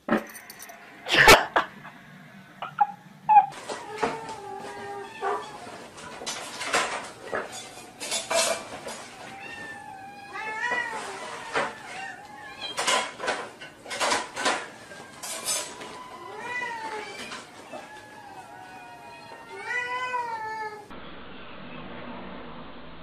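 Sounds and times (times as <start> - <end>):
cat meowing: 2.6 - 5.9, 9.1 - 13.1, 14.7 - 20.9.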